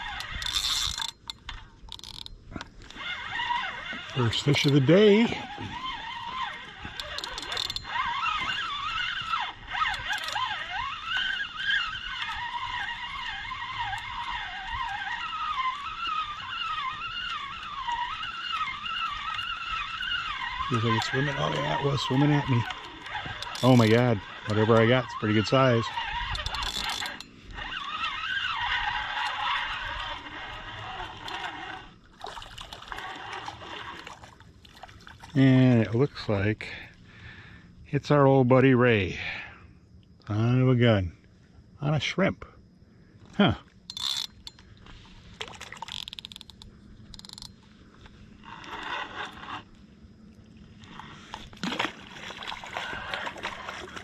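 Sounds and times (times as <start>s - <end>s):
fishing reel clicks: 0.0s - 32.0s, 43.8s - 49.8s
fishing reel gear whine: 0.0s - 54.0s.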